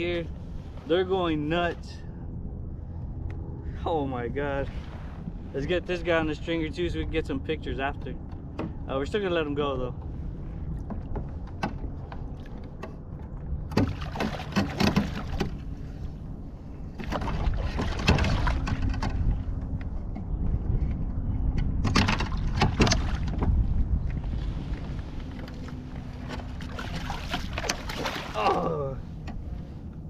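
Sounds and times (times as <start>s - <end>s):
low wind rumble: 0.0s - 30.0s
knocks and rattles against kayak: 7.7s - 30.0s
water splashing: 13.7s - 15.8s, 16.9s - 19.1s, 24.7s - 29.0s.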